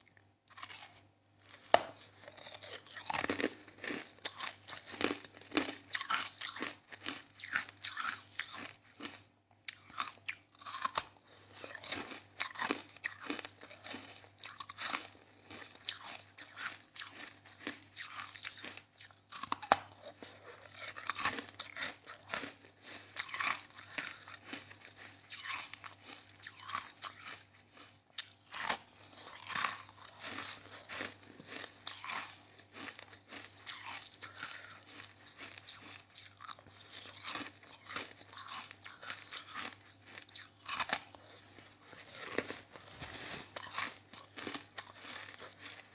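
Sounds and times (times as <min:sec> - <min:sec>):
person crunching ice: 0:00.5 - 0:24.3, 0:28.2 - 0:45.9.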